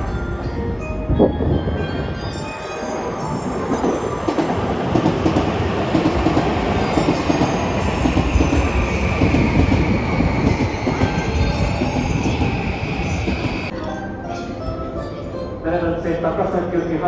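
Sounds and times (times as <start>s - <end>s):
train wheels clattering: 3.7s - 13.7s.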